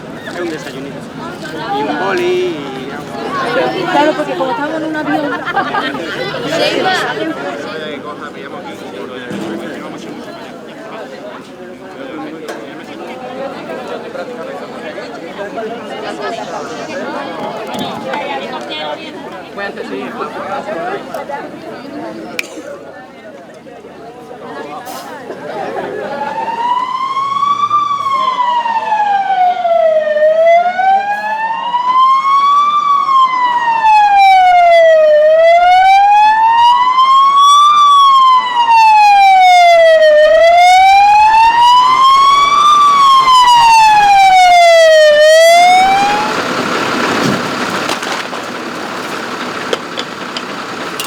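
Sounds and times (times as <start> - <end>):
emergency vehicle siren wailing: 0.0 - 20.6, 25.5 - 51.0
steady noise: 15.8 - 17.7.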